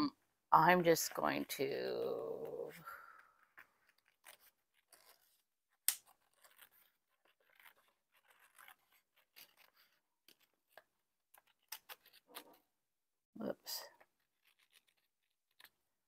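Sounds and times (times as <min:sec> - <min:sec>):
scissors snipping paper: 0:03.4 - 0:12.6, 0:14.0 - 0:15.9.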